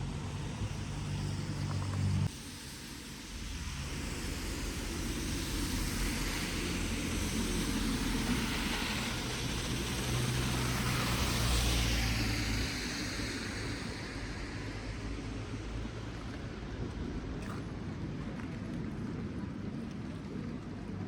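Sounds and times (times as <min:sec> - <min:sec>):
vehicle engine hum: 0:00.0 - 0:21.0
rain hissing: 0:00.4 - 0:16.8.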